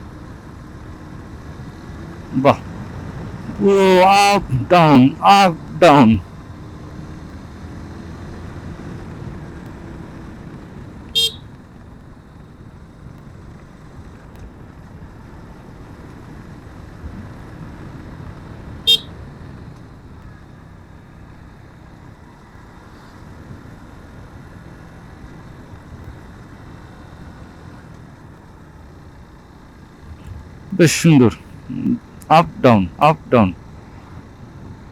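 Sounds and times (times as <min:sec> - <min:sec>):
motorcycle horn beeps: 0:11.2 - 0:11.4, 0:18.9 - 0:19.1.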